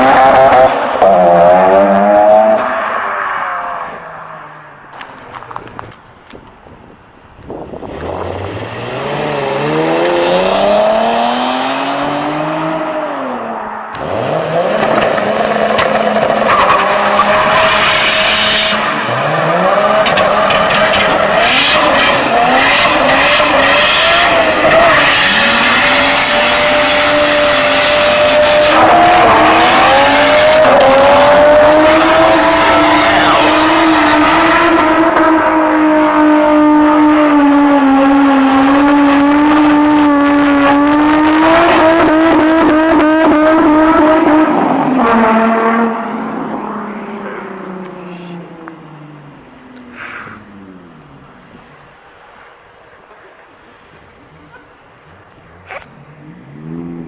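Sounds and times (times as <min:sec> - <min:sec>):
car engine revving hard: 0:00.0 - 0:02.8, 0:07.8 - 0:47.2.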